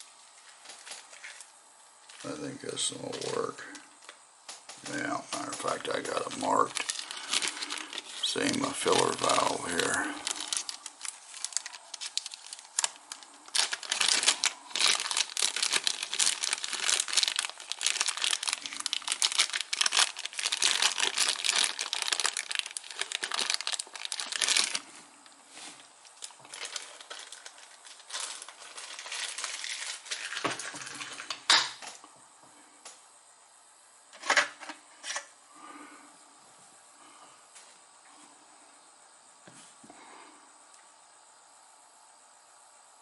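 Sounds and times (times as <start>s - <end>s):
plastic packet crinkling: 4.9s - 31.4s.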